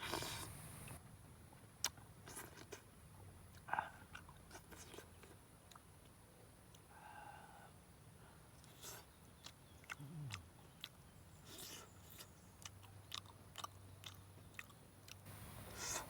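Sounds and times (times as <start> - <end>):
person chewing: 0.0 - 0.6, 1.8 - 2.8, 3.5 - 5.8, 8.6 - 15.2
mouth clicks: 8.6 - 15.2.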